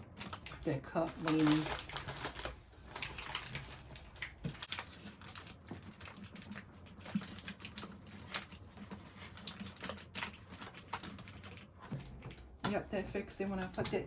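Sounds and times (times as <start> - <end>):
adhesive tape crinkling and clicks: 0.0 - 12.6.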